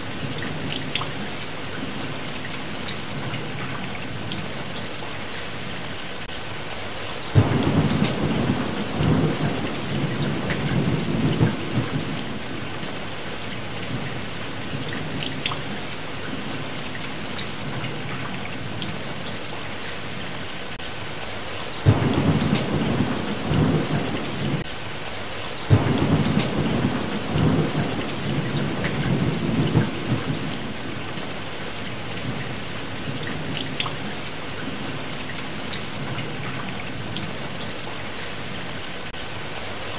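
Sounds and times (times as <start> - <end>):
steady rain: 0.0 - 39.9
thunder cracking and rolling: 7.4 - 12.7, 21.8 - 24.7, 25.7 - 31.0.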